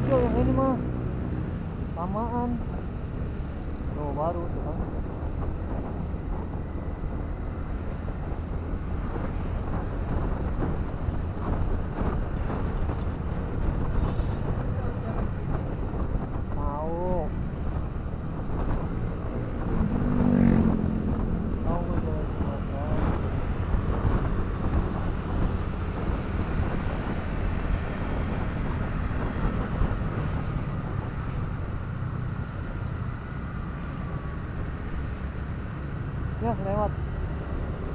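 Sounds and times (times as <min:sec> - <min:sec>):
road traffic: 0:00.0 - 0:37.9
wind buffeting microphone: 0:00.0 - 0:37.9
motorcycle engine: 0:17.4 - 0:37.9.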